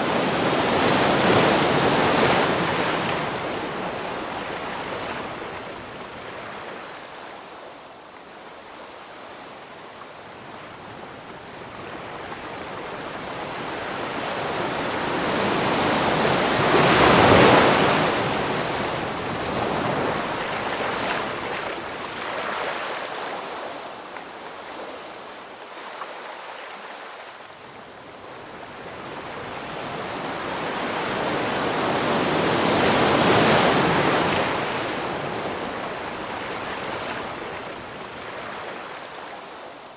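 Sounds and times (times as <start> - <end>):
ocean waves breaking: 13.8 - 23.6.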